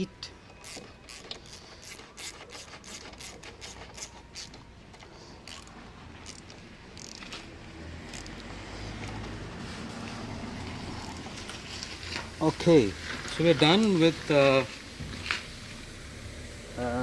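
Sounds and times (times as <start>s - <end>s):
wrench clicking: 0.5s - 4.6s, 5.4s - 7.4s, 8.1s - 9.2s
rubbing handling noise: 0.5s - 7.5s.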